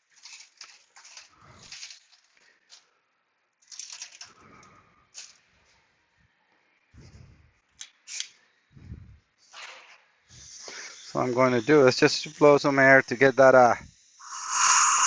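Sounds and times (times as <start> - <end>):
rustles and hissy scrapes: 0.0 - 2.9, 8.8 - 14.1.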